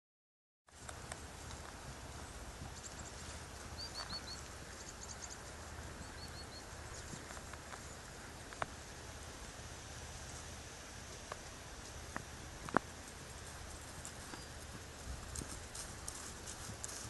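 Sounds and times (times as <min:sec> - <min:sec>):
small bird chirping: 0:02.7 - 0:08.1, 0:14.2 - 0:14.7
wind rumble on microphone: 0:12.1 - 0:17.0.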